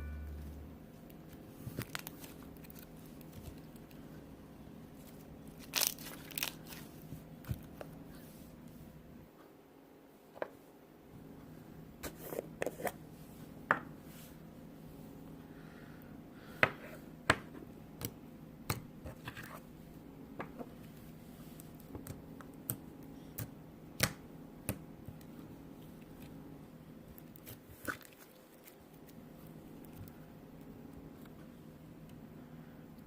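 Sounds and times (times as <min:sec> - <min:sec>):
low hum: 0:00.0 - 0:01.3.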